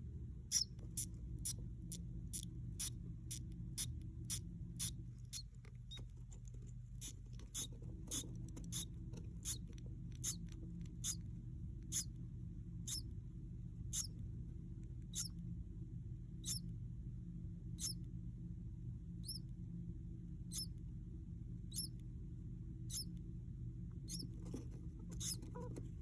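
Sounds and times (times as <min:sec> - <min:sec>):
low steady hum: 0:00.0 - 0:26.0
bird chicks cheeping: 0:00.5 - 0:06.1, 0:07.0 - 0:12.2, 0:12.8 - 0:13.1, 0:13.9 - 0:14.2, 0:15.1 - 0:15.4, 0:16.4 - 0:16.7, 0:17.8 - 0:18.1, 0:19.2 - 0:19.5, 0:20.5 - 0:20.8, 0:21.7 - 0:22.0, 0:22.9 - 0:23.2, 0:24.0 - 0:24.3, 0:25.1 - 0:25.7.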